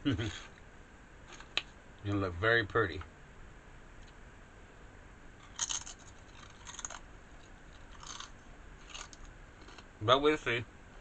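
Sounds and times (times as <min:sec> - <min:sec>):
mouth crunching crisp food: 0:05.4 - 0:09.9.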